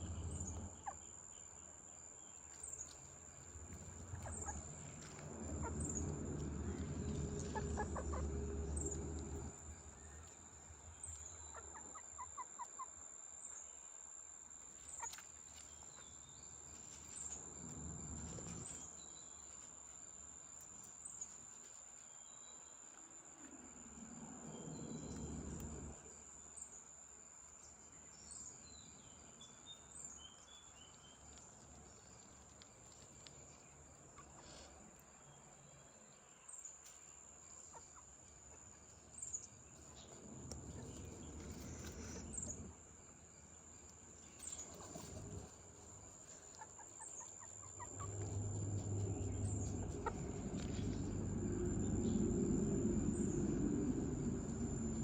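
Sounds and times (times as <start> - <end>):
low rumble: 0.0 - 0.8, 3.6 - 10.4, 24.1 - 26.0, 47.8 - 55.0
insects droning: 0.0 - 55.0
hens clucking: 3.7 - 9.6, 11.3 - 12.9, 46.2 - 52.1.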